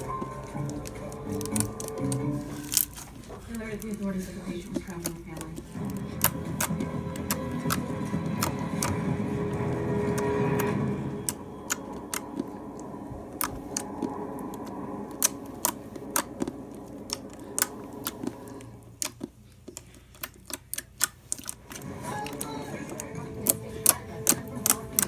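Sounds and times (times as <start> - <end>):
slime clicking and popping: 19.0 - 21.8, 23.4 - 25.0.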